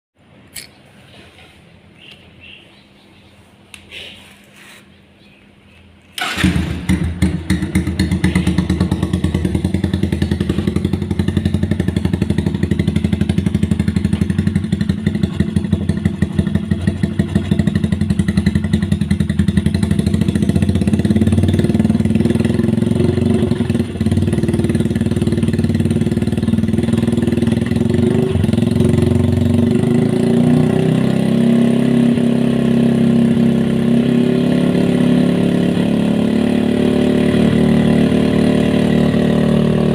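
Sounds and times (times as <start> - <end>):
motorcycle engine idling: 6.2 - 29.8.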